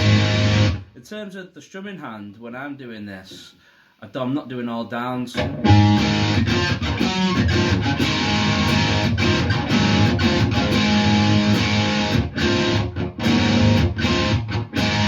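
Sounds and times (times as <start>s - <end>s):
electric guitar strumming: 0.0s - 0.9s, 5.4s - 15.0s.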